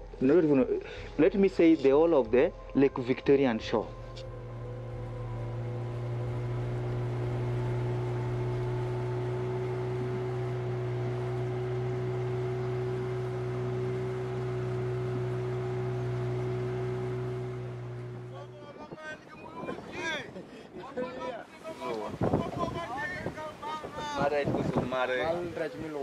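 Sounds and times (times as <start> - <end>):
boat motor running: 3.7 - 19.9, 21.6 - 26.0.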